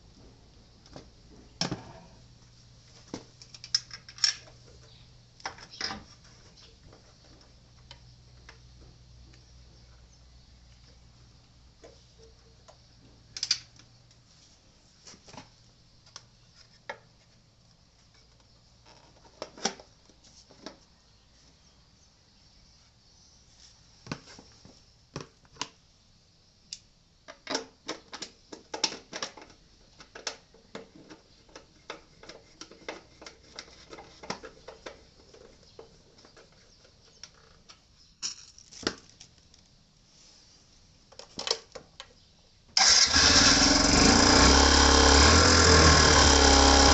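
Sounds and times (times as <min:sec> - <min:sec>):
clicks and knocks of tools: 0:03.4 - 0:04.6, 0:13.3 - 0:14.2.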